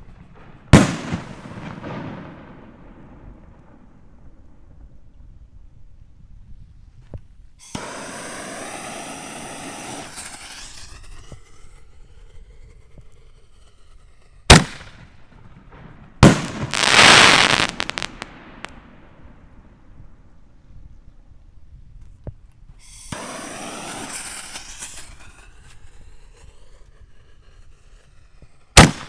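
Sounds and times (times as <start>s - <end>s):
firework bangs: 0.0s - 4.4s, 7.6s - 20.0s, 22.8s - 26.5s, 28.8s - 29.0s
firework hissing rush: 7.6s - 14.9s, 16.2s - 19.0s, 22.8s - 29.0s.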